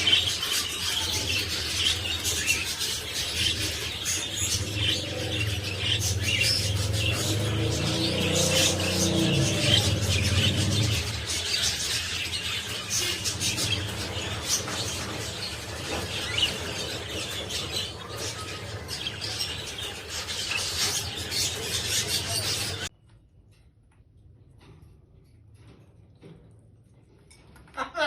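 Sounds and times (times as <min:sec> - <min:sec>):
noisy background: 0:00.0 - 0:22.9
cockatiel chirping and squawking: 0:08.6 - 0:22.9.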